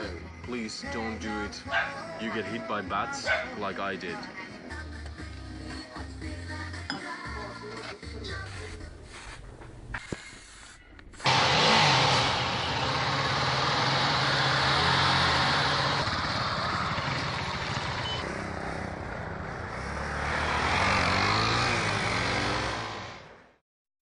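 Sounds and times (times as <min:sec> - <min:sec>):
dirt bike engine running: 0:11.2 - 0:23.2.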